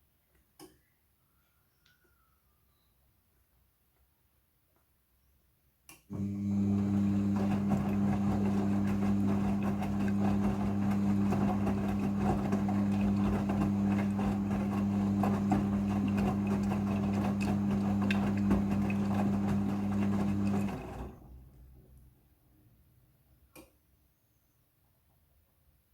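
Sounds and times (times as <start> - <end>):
washing machine humming: 6.1 - 21.7
water and laundry sloshing: 6.2 - 21.2.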